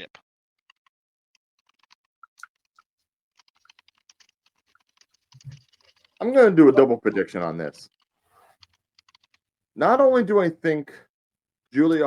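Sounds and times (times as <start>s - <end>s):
faint clicks: 7.8s - 9.4s.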